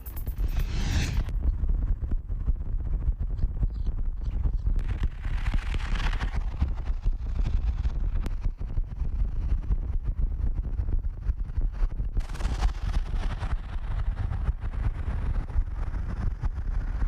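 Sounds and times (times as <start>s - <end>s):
wind buffeting microphone: 1.2s - 17.0s.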